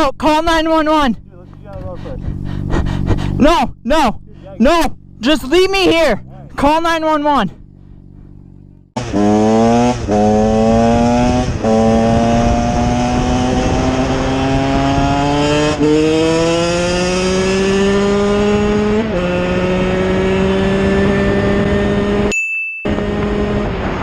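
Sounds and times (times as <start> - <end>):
wind and road noise: 0.0 - 24.0
engine accelerating through gears: 4.3 - 22.3, 22.9 - 24.0.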